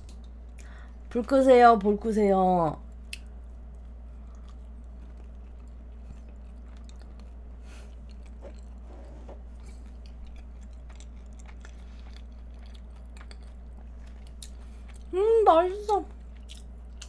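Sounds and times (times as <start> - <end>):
steady low hum: 0.0 - 17.0
person chewing soft food: 2.9 - 15.1, 16.1 - 17.0.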